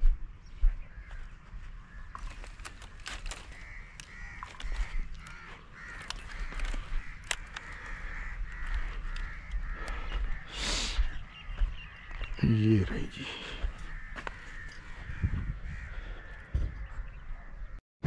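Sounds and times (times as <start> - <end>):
bird harsh calls: 0.4 - 17.8
sharp clicks: 2.2 - 10.0
wind rumble on microphone: 14.6 - 17.7.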